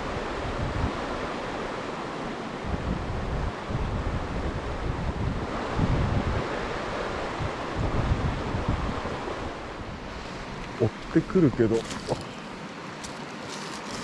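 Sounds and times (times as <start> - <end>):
wind buffeting microphone: 2.6 - 12.8
water rushing over rocks: 5.5 - 14.0.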